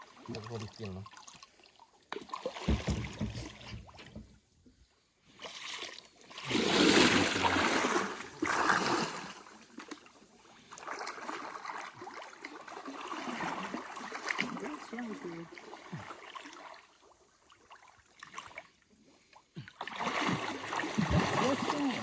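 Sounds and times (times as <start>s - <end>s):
water splashing against boat: 0.0s - 4.7s, 5.3s - 22.0s
knock: 2.6s - 4.3s
low thuds: 2.7s - 4.4s.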